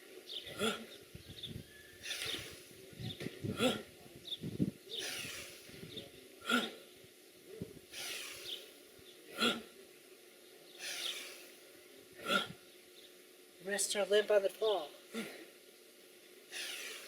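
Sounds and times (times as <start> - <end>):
person huffing exhalations: 15.1 - 15.5.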